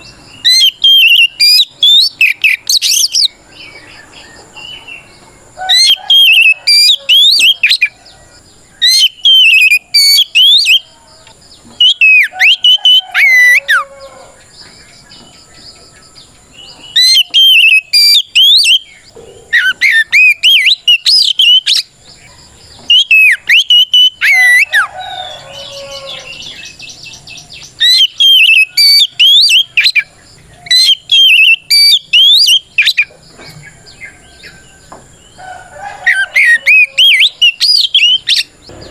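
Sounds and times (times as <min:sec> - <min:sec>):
bird singing whistled phrases: 0:00.0 - 0:03.8, 0:05.7 - 0:08.0, 0:08.8 - 0:10.9, 0:11.8 - 0:14.0, 0:16.6 - 0:21.9, 0:22.9 - 0:26.7, 0:27.8 - 0:30.1, 0:30.7 - 0:33.1, 0:36.1 - 0:38.9.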